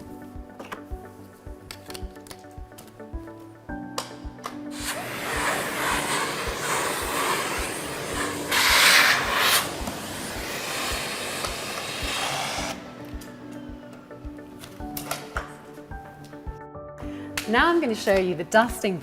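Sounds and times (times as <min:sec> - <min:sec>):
background music with beat: 0:00.0 - 0:19.0
vacuum cleaner suction: 0:04.7 - 0:12.8.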